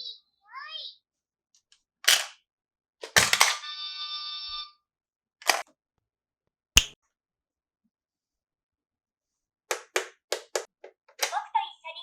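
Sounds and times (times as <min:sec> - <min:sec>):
plastic toy parts clicking: 0:02.1 - 0:02.4, 0:03.0 - 0:03.6, 0:05.4 - 0:05.6.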